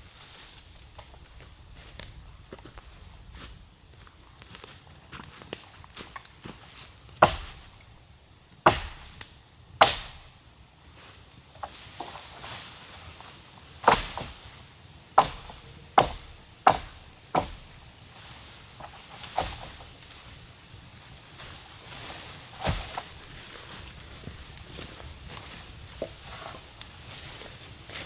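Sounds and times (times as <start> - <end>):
hand tool striking wood: 7.1 - 7.9, 8.6 - 10.3, 13.8 - 14.4, 15.2 - 17.8, 18.8 - 19.9, 22.6 - 23.4.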